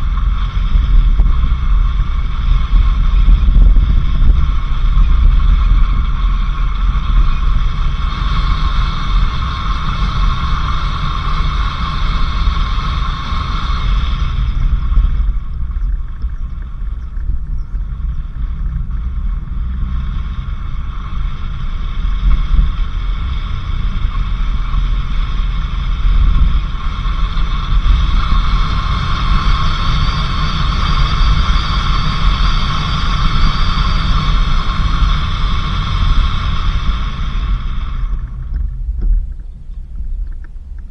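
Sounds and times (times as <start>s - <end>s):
vehicle rumbling on dirt road: 0.0s - 40.9s
high hiss: 17.9s - 38.7s.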